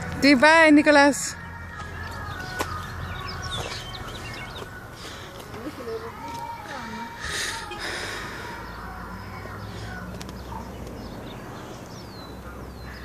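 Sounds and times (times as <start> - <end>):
birds calling: 0.0 - 13.0
high falling bird chirps: 1.4 - 5.3.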